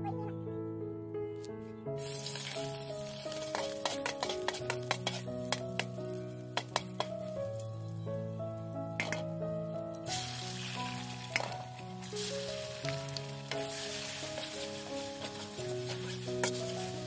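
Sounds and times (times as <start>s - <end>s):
soft background music: 0.0s - 17.0s
food sizzling in a wok: 2.0s - 8.0s, 9.0s - 9.4s, 10.0s - 17.0s
metal spatula clinking on pan: 3.5s - 5.9s, 9.0s - 9.2s.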